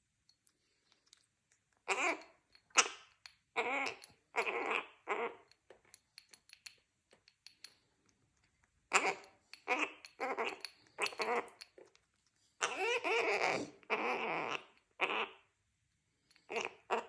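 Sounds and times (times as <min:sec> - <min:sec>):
cockatoo calling: 0:01.8 - 0:03.0, 0:03.6 - 0:05.5, 0:08.9 - 0:11.6, 0:12.6 - 0:15.5, 0:16.5 - 0:17.0.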